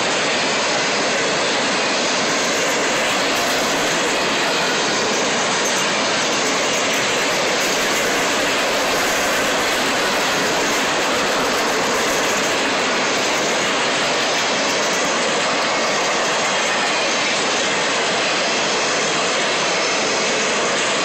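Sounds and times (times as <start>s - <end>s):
steel wheels rushing on rails: 0.0s - 21.0s.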